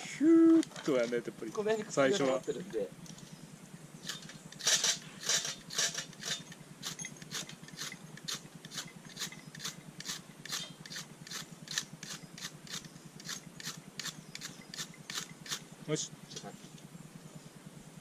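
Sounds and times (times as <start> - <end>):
fire-starter rod scraped by striker: 4.0 - 15.6.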